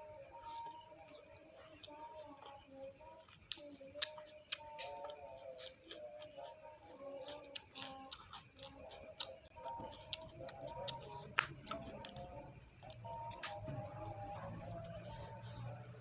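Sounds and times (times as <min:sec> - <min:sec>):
crisp chewing crunches: 0:01.7 - 0:13.7.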